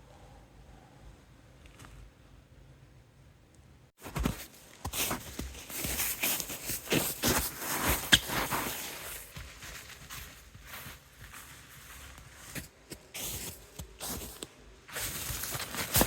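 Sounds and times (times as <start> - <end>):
footsteps crunching through snow: 4.0 - 16.0.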